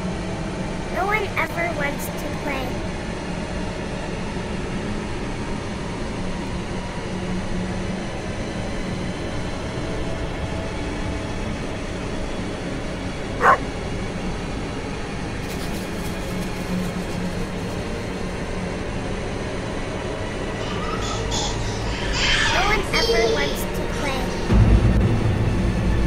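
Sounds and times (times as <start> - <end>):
dog bark: 13.4 - 13.6
low rumbling drone: 23.9 - 26.0.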